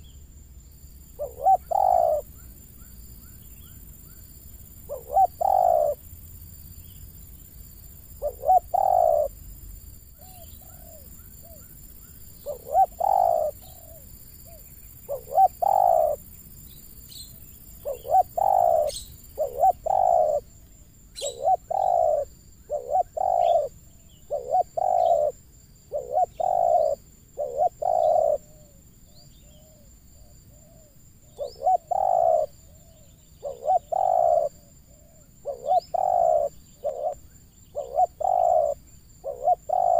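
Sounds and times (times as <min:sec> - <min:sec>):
doves cooing: 0:01.2 - 0:02.5, 0:04.8 - 0:06.0, 0:08.1 - 0:09.4, 0:10.2 - 0:16.2, 0:17.7 - 0:20.6, 0:21.2 - 0:28.8, 0:29.4 - 0:39.9.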